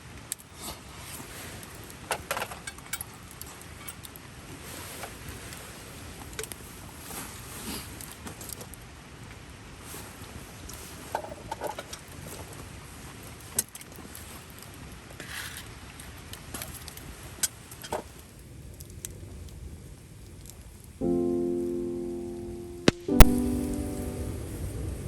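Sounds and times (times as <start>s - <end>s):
steady low background noise: 20.9s - 25.0s.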